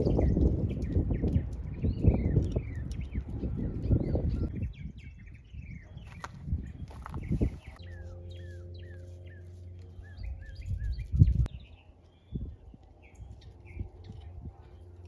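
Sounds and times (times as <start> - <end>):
birds chirping: 0.0 - 15.0
low rumble: 0.0 - 15.0
steady low hum: 7.2 - 15.0.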